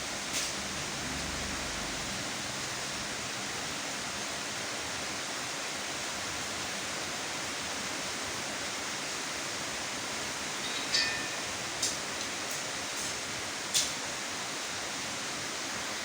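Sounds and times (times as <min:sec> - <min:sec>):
rain hissing: 0:00.0 - 0:16.0
high chirp: 0:10.6 - 0:11.6.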